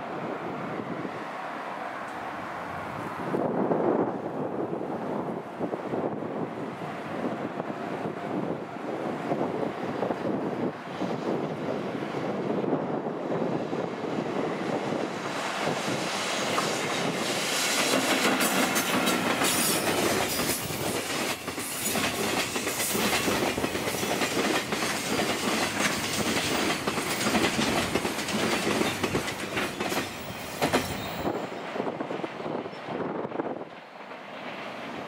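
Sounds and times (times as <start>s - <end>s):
freight train rumbling past: 0.0s - 35.0s
wheels clicking over rail joints: 17.9s - 31.2s.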